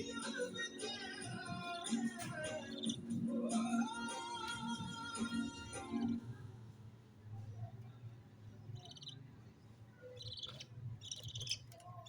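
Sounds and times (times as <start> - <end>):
budgerigars chirping: 1.5 - 3.9, 8.8 - 9.3, 10.0 - 11.8.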